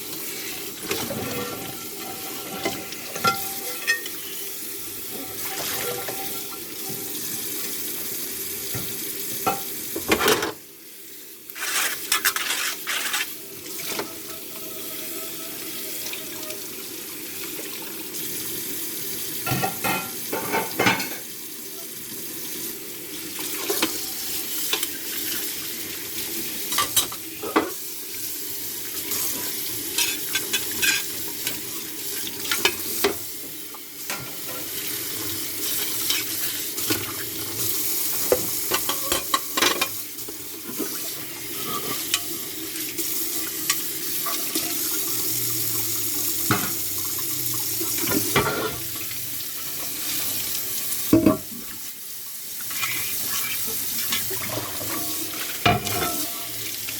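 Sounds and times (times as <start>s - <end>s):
running water: 0.0s - 10.3s, 34.0s - 56.9s
dishes scrubbing: 0.8s - 4.4s, 5.1s - 7.0s, 11.6s - 16.5s, 19.4s - 21.2s, 30.0s - 31.2s, 38.3s - 40.0s, 40.6s - 42.4s, 48.0s - 48.9s, 52.6s - 56.7s
dishes clinking and knocking: 0.9s - 4.2s, 9.4s - 10.6s, 19.4s - 21.2s, 38.3s - 40.0s, 54.4s - 56.4s.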